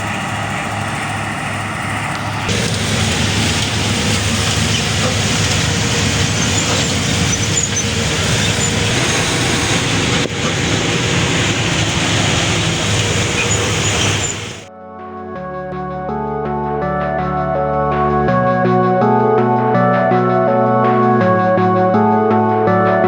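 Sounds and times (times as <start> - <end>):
combine harvester engine drone: 0.0 - 14.7
machinery noise: 0.0 - 14.7.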